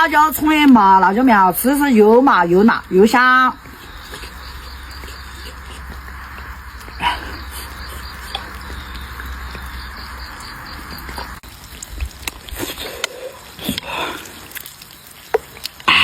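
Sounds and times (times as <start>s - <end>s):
steady hiss: 0.0s - 16.0s
crisp bites and chewing: 3.6s - 15.9s.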